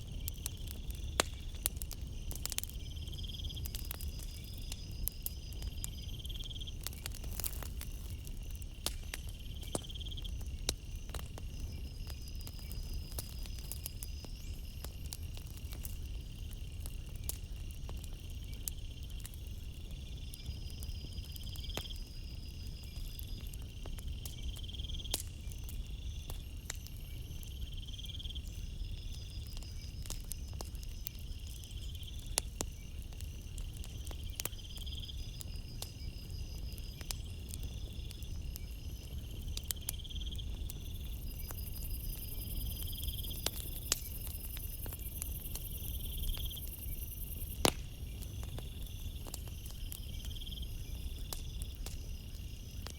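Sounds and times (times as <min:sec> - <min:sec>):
campfire crackling and popping: 0:00.0 - 0:52.9
insect chirping: 0:00.0 - 0:52.9
high-pitched insect hiss: 0:34.2 - 0:47.6.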